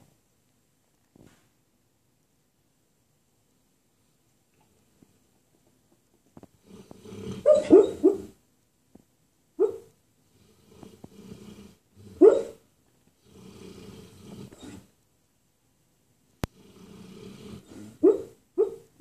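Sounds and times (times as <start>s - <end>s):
snoring breaths: 6.4s - 8.3s, 10.2s - 14.9s, 16.4s - 18.0s
dog barking in its sleep: 7.0s - 8.4s, 9.6s - 10.0s, 11.4s - 12.7s, 14.1s - 14.9s, 17.3s - 19.0s.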